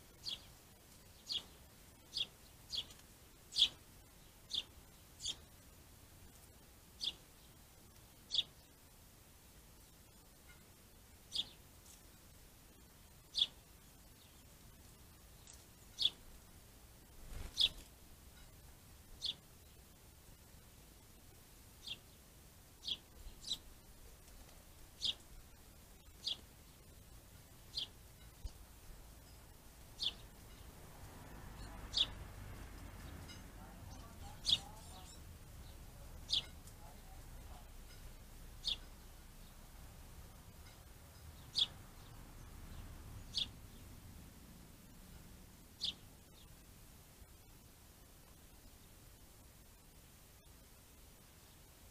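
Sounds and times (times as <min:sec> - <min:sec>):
small bird calling: 0:04.5 - 0:05.5, 0:07.0 - 0:07.2, 0:08.3 - 0:08.7, 0:11.3 - 0:11.6, 0:15.4 - 0:16.2, 0:25.0 - 0:25.2, 0:27.7 - 0:28.6, 0:30.0 - 0:30.7, 0:33.3 - 0:39.7, 0:40.6 - 0:42.2, 0:43.2 - 0:43.8, 0:45.8 - 0:46.5.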